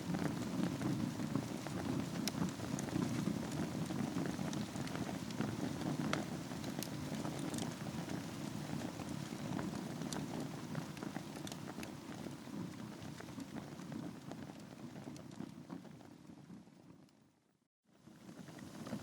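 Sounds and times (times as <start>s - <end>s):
fire crackles and pops: 0.0s - 17.2s, 18.1s - 19.0s
low rumble of flames: 0.0s - 17.2s, 18.0s - 19.0s.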